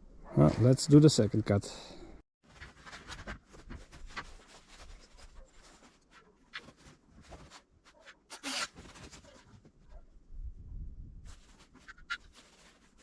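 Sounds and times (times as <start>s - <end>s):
handling clicks and scrapes: 2.4s - 10.0s, 11.3s - 13.0s.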